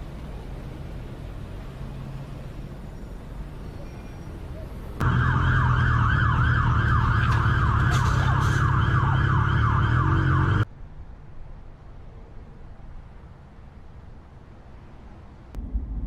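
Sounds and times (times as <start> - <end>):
siren yelping: 5.0 - 10.7
low rumble: 15.6 - 16.0.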